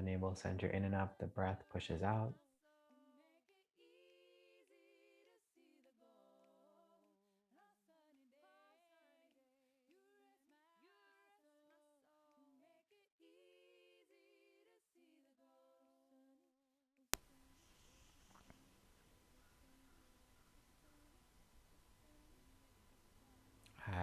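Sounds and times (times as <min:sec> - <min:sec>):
women singing without instruments: 0:02.4 - 0:16.5
room noise hiss: 0:17.2 - 0:24.0.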